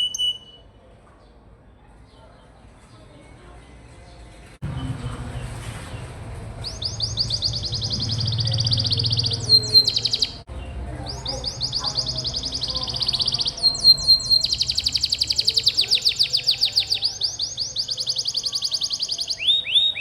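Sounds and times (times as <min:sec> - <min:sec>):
canary singing trills: 0:00.0 - 0:00.8, 0:06.6 - 0:20.0.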